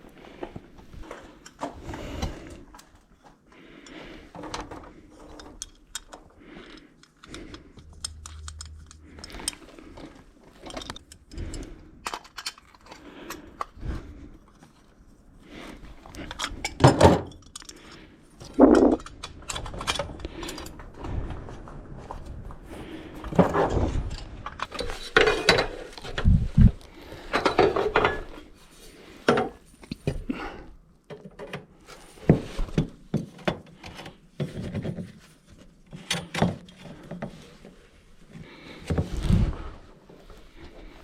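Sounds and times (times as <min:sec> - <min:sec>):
metal tools clinking and knocking: 0:04.4 - 0:13.7, 0:16.2 - 0:20.8, 0:24.6 - 0:26.3.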